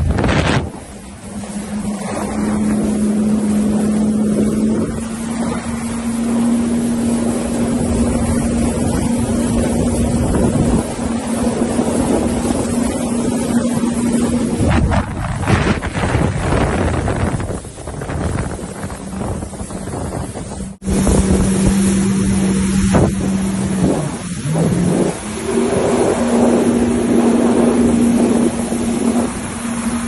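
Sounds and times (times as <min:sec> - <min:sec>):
jet ski engine drone: 0:00.0 - 0:30.0
water noise: 0:00.0 - 0:30.0
wind on microphone: 0:00.0 - 0:30.0.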